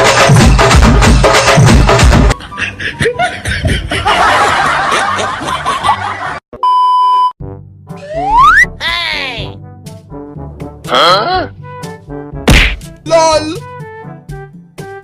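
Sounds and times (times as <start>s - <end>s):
percussive music beat: 0.0s - 2.4s, 11.7s - 15.0s
steady beep: 6.6s - 7.4s.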